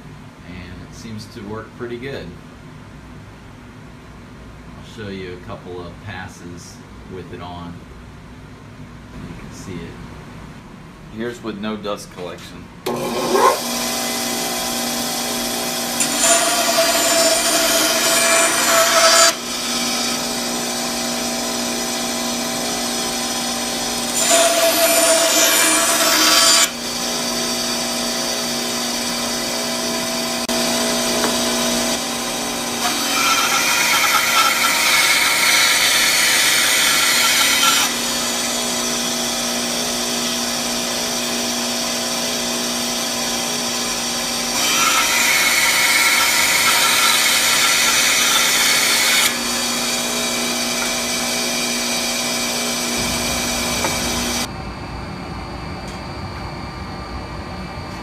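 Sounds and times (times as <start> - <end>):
bandsaw cutting wood: 12.9 - 54.5
bandsaw motor humming: 12.9 - 54.5.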